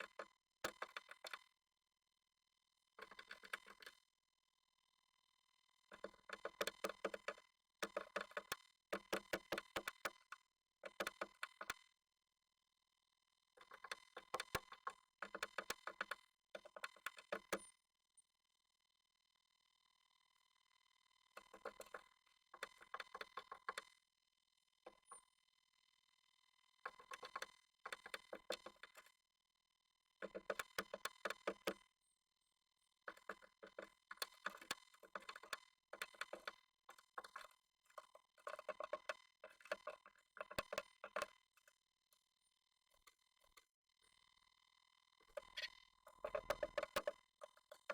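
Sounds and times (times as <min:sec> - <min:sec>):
bird claws scratching on wood: 0:33.1 - 0:41.3.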